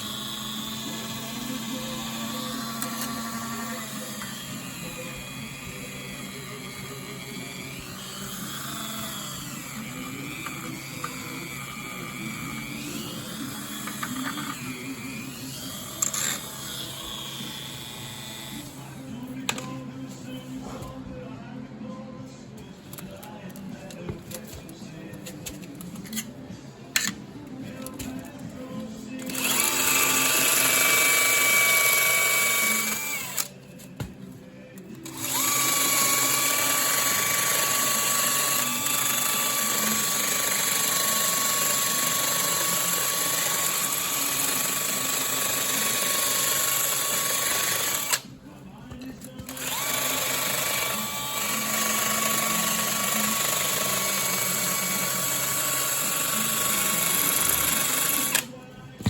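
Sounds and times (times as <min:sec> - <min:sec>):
power tool motor whining: 0:00.0 - 0:18.9, 0:29.2 - 0:33.5, 0:35.0 - 0:48.3, 0:49.4 - 0:58.5.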